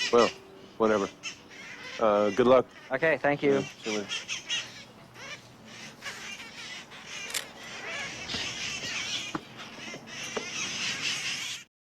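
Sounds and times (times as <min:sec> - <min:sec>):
parakeets screeching and chattering: 0:00.0 - 0:11.7
sharp parakeet calls: 0:00.0 - 0:11.7.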